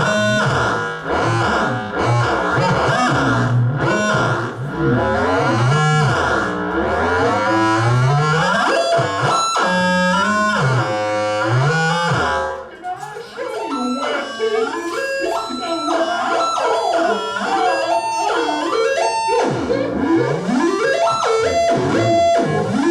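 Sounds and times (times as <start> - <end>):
stepping electronic tones: 0.0 - 12.6, 13.5 - 22.9
electronic tones sweeping up and down: 13.8 - 22.9.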